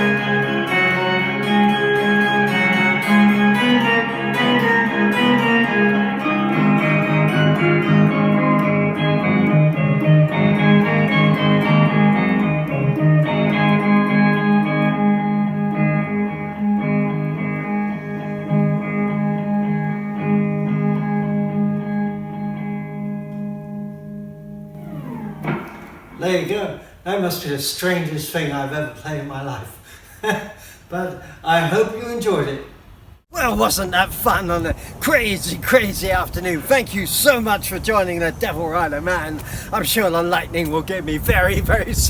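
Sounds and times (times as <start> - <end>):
ambient electric guitar: 0.0 - 26.2.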